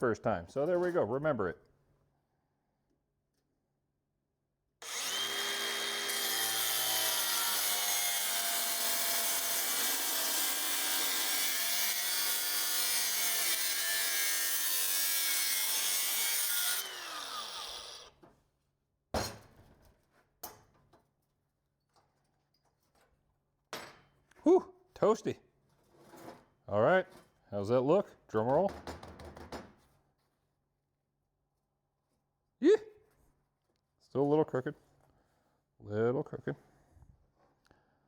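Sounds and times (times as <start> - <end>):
angle grinder cutting metal: 4.8 - 18.1.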